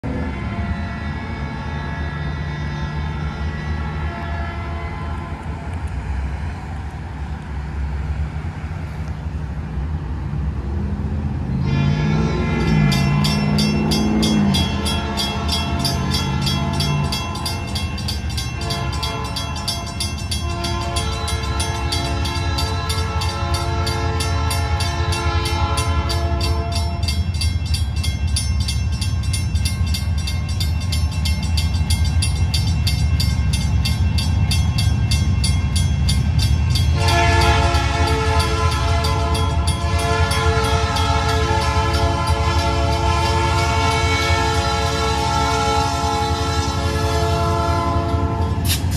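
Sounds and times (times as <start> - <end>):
locomotive horn blasts: 0.0 - 5.8, 11.5 - 27.4, 36.7 - 48.9
crossing signal bell dinging: 11.6 - 48.7.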